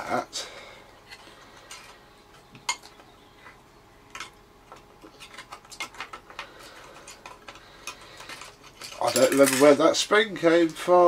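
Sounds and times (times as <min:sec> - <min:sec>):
small plastic parts clicking: 0:04.1 - 0:09.8.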